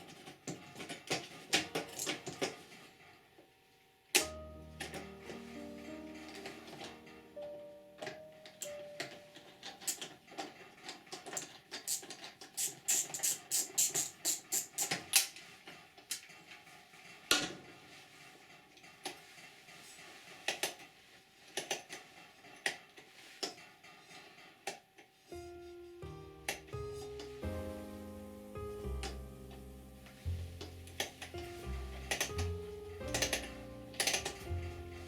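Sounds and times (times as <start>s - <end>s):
small hard parts clicking: 0.0s - 2.6s, 8.0s - 15.4s, 30.2s - 35.0s.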